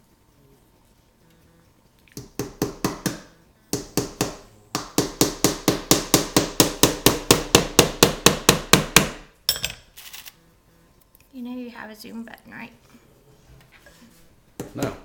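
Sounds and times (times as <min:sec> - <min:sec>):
hammer driving nails into wood: 0:02.2 - 0:09.2.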